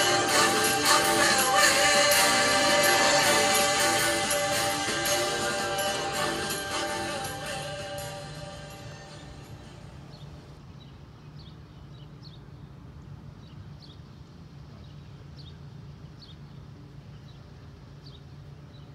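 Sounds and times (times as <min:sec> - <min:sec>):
small birds chirping: 0:08.7 - 0:18.9.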